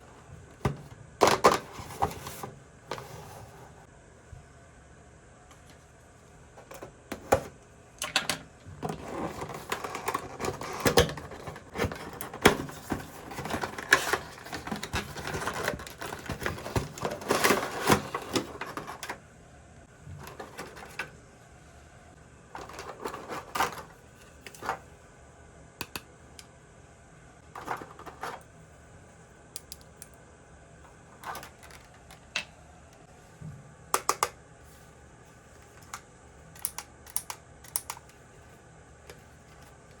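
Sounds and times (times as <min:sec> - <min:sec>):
packaging rustling: 0:09.0 - 0:19.1.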